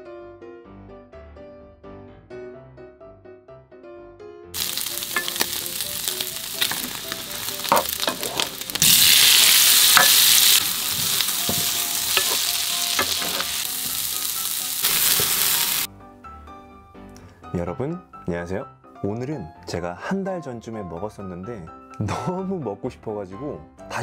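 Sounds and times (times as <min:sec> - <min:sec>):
meat sizzling in a pan: 0:04.6 - 0:15.9
wooden spatula scraping a pan: 0:07.6 - 0:08.6, 0:10.0 - 0:13.6.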